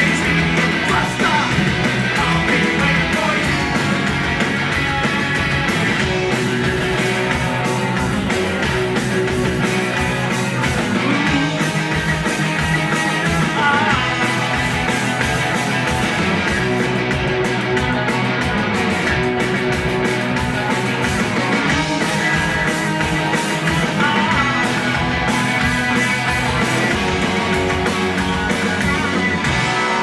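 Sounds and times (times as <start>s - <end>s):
live punk rock band: 0.0s - 30.0s.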